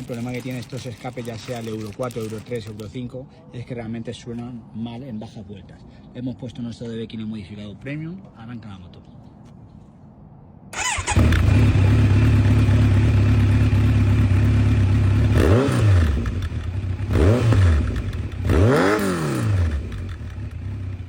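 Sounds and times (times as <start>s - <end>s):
motorcycle engine idling and revving: 10.8s - 21.0s.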